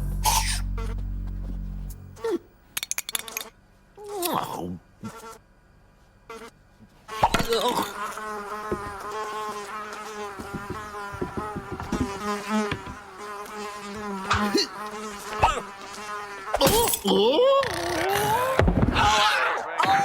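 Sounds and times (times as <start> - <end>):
wavering buzz: 0.0 - 2.6.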